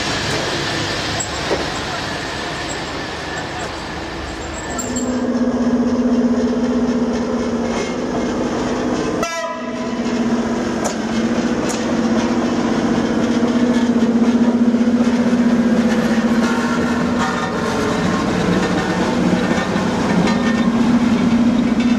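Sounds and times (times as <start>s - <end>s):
rail vehicle rumble: 0.0s - 21.9s
train horn blasts: 9.2s - 10.2s.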